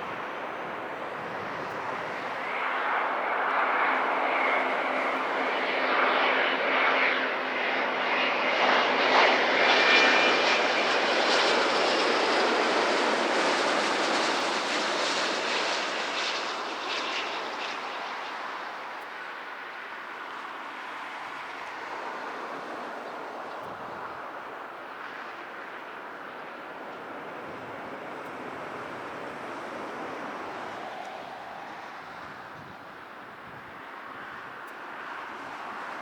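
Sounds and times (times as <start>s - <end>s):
airliner engines passing: 0.0s - 36.0s
high engine whine: 8.5s - 36.0s.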